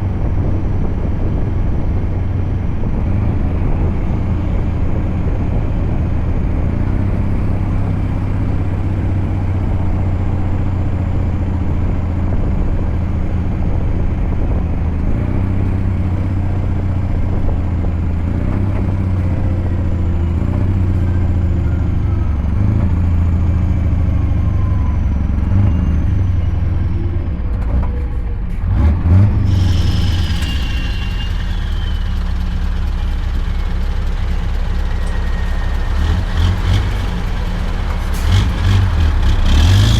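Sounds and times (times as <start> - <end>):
truck engine humming: 0.0 - 39.9
high hiss with falling squeal: 29.5 - 33.2.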